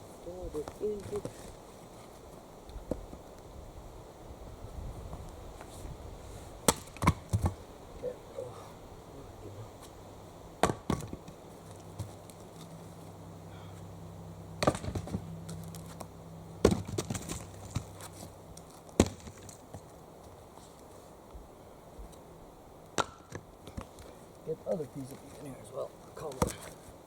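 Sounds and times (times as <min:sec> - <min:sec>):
axe chopping into log: 0:06.7 - 0:07.6, 0:10.6 - 0:11.2, 0:14.6 - 0:15.2, 0:16.6 - 0:17.9, 0:19.0 - 0:19.4, 0:23.0 - 0:23.9.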